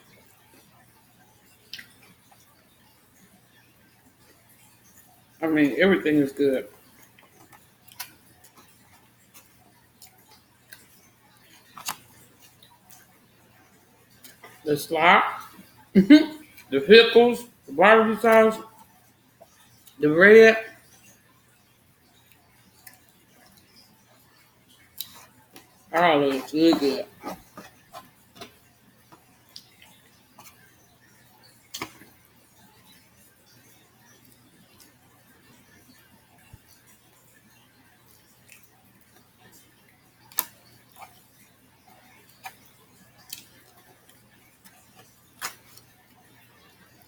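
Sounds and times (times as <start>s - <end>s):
mouth chewing food: 6.6s - 16.8s, 22.2s - 33.0s, 38.1s - 47.0s.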